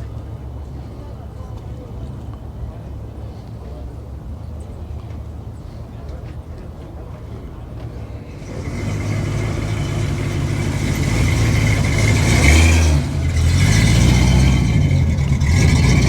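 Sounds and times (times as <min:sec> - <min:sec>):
car engine rumbling: 0:06.8 - 0:16.0.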